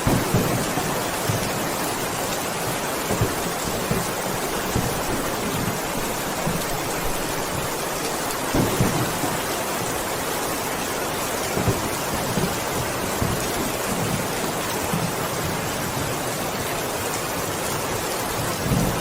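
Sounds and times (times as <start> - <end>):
heavy rain hissing: 0.0 - 19.0
low thuds of water: 3.0 - 10.1.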